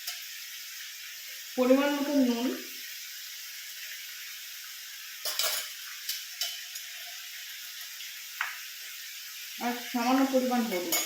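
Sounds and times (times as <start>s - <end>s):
chicken sizzling in a pan: 0.0s - 11.0s
spoon clinking on metal: 5.2s - 7.1s.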